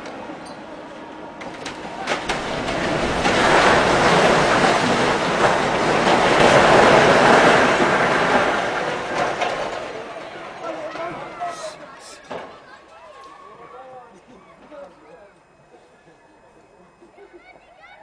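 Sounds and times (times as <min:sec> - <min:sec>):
rubble and masonry crashing down: 0:01.4 - 0:11.7.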